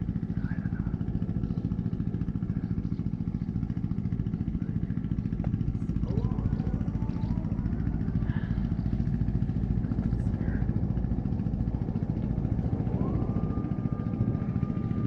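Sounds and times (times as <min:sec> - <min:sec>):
motorcycle engine rumbling: 0:00.0 - 0:15.0
thin rising whine: 0:05.5 - 0:15.0.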